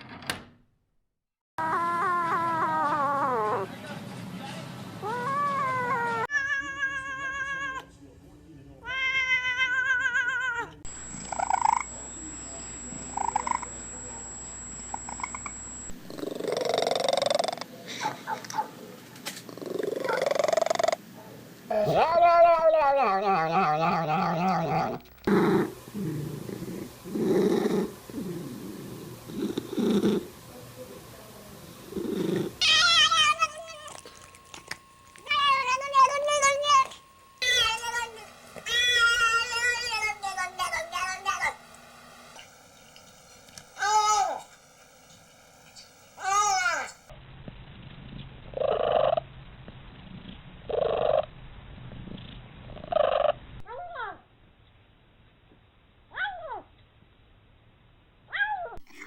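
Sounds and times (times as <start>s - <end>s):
cat yowling: 1.6s - 3.7s, 5.0s - 7.9s, 8.8s - 11.8s, 21.7s - 25.0s, 32.6s - 34.6s, 35.2s - 41.4s
cat purring: 11.1s - 13.8s, 16.1s - 17.7s, 19.3s - 21.0s, 23.0s - 41.5s, 47.9s - 53.4s
cat calls: 32.6s - 34.4s.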